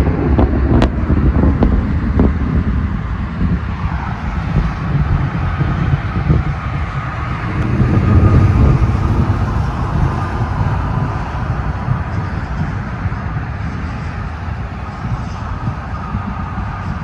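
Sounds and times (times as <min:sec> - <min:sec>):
wind rumble on microphone: 0:00.0 - 0:17.0
road traffic: 0:03.6 - 0:17.0.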